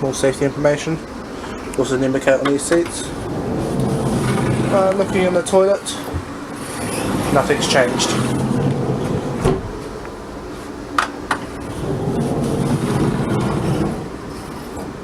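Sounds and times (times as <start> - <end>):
electric train interior hum: 0.0 - 15.0.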